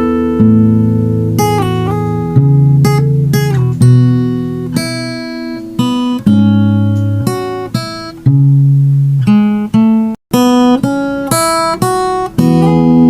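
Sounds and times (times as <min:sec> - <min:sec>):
acoustic guitar plucking: 0:00.0 - 0:13.0.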